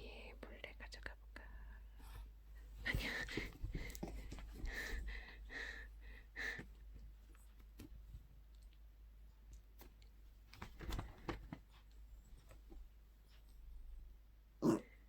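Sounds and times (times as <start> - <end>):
dogs playing clicks and knocks: 3.2 - 5.0.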